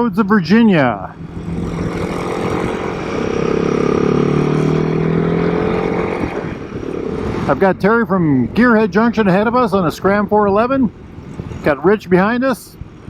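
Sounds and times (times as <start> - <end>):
wind and road noise: 0.0 - 13.0
motorcycle engine running: 1.0 - 10.3.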